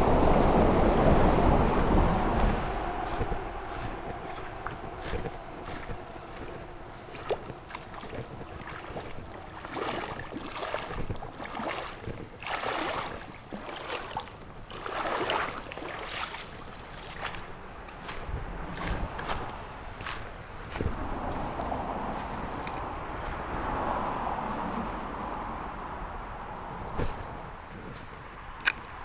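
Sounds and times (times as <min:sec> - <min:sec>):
river water splashing: 0:00.0 - 0:29.0.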